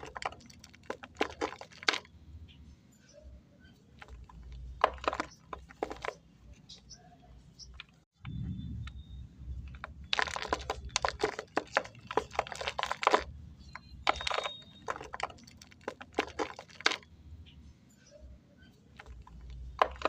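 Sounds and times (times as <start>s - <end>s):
clay crunching and crackling: 0.0s - 2.6s, 3.7s - 17.6s, 18.8s - 20.0s.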